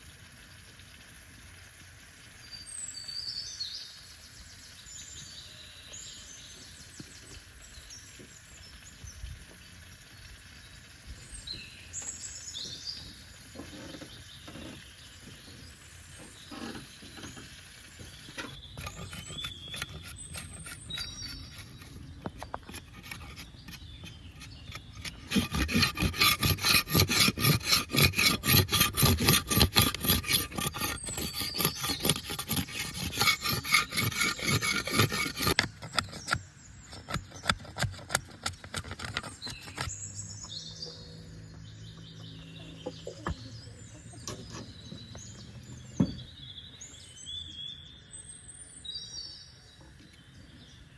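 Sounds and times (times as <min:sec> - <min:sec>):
rasping scraping strokes: 0:16.4 - 0:40.0
bird chirps: 0:30.5 - 0:50.9.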